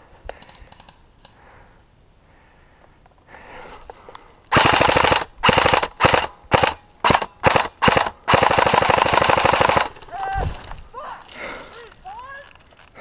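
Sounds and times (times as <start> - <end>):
airsoft gun firing bursts: 4.5 - 10.0.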